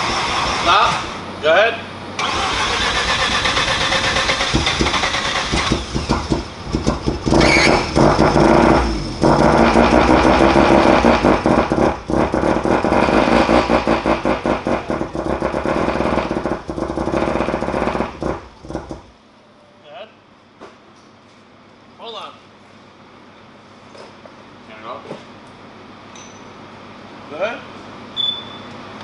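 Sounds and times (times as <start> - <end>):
rotary engine revving: 0.0 - 1.2, 2.2 - 19.1.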